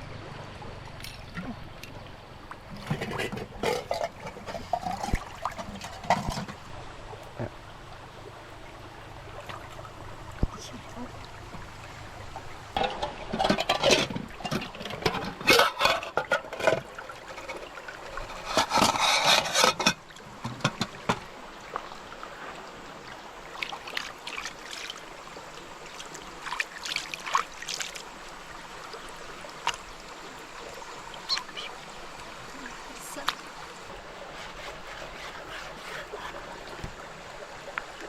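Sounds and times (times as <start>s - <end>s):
stream water flowing: 0.0s - 38.0s
rustling and scraping: 2.7s - 6.7s, 12.8s - 21.3s, 33.8s - 37.0s.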